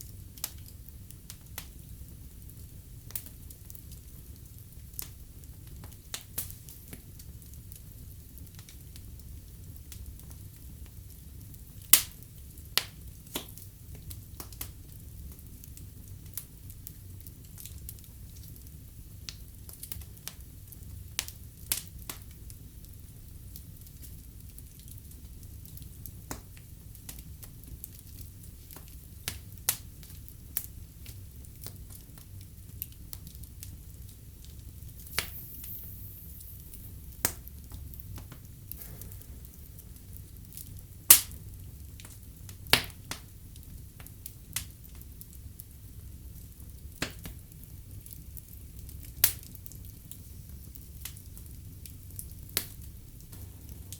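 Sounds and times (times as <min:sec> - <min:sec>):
fire crackles and pops: 0:00.0 - 0:53.9
fire rumble and hiss: 0:00.0 - 0:53.9.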